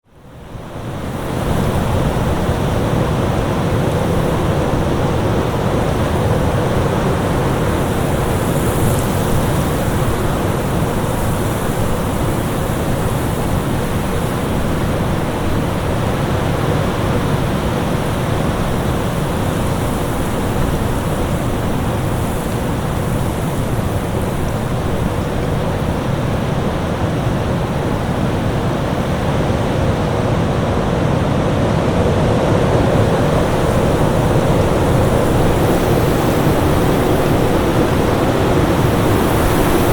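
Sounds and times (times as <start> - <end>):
storm wind rushing: 27.7 - 39.9.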